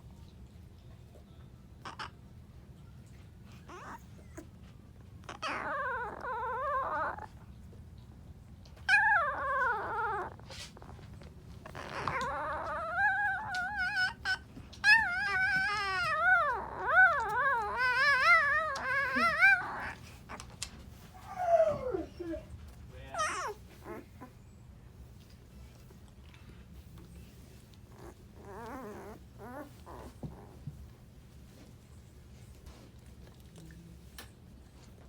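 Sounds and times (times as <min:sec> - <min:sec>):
puppy howling: 0:05.3 - 0:07.3, 0:08.9 - 0:10.4, 0:11.7 - 0:20.0, 0:21.2 - 0:22.4, 0:23.2 - 0:24.1, 0:28.0 - 0:30.5.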